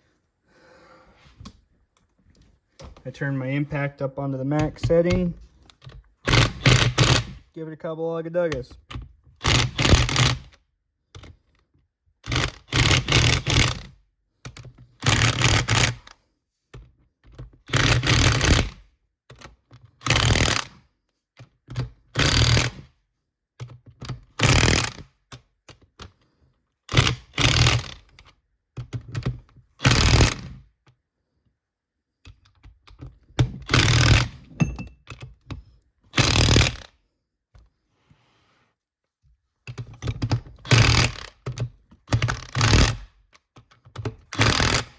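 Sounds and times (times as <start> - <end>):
impact wrench hammering: 33.7 - 35.0.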